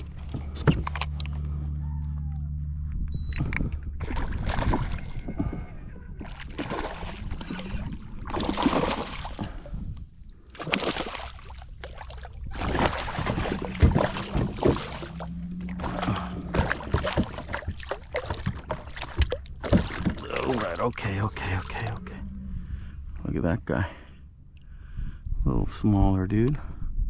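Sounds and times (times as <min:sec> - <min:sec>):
water sloshing and splashing: 0:00.0 - 0:01.7, 0:03.3 - 0:22.8
faint low hum: 0:00.0 - 0:08.8.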